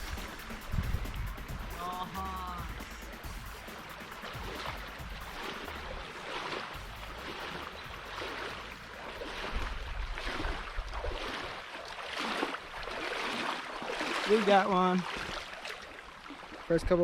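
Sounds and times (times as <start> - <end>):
wind rumble on microphone: 0.0 - 1.8, 6.8 - 11.6
water splashing around kayak: 0.0 - 17.0.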